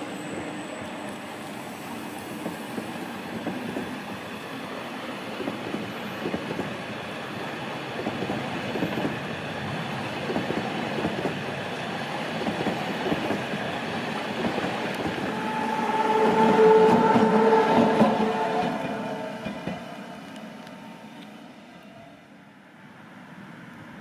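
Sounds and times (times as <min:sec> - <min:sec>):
electric locomotive whine: 0:00.0 - 0:23.7
train wheels rumbling and clacking: 0:05.3 - 0:21.4.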